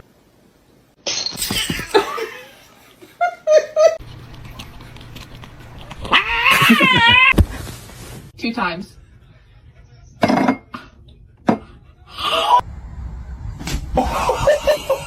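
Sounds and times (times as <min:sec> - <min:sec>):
person laughing: 0:01.6 - 0:04.0, 0:06.4 - 0:07.4, 0:14.0 - 0:15.0.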